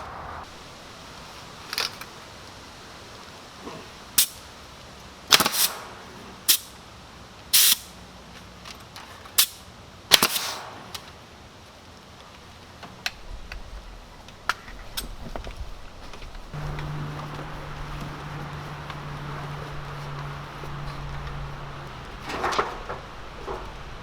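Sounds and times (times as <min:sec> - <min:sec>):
nail gun shots: 0:05.3 - 0:06.7, 0:09.4 - 0:11.0
brief hiss: 0:07.5 - 0:08.0, 0:09.4 - 0:11.1.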